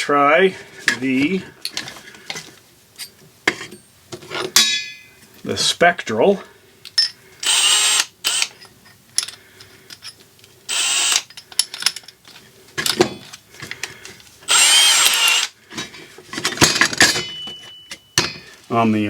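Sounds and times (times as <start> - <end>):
power drill motor whine: 7.4 - 8.5, 10.7 - 11.3, 14.5 - 15.5.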